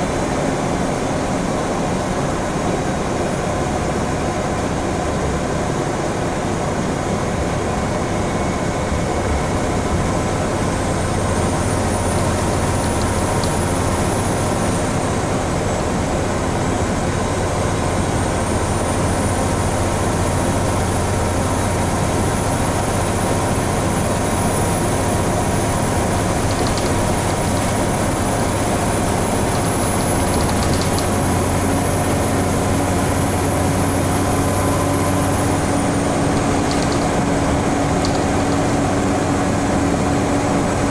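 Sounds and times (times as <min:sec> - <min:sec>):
bus engine running: 0:00.0 - 0:40.9
road noise: 0:23.2 - 0:40.9.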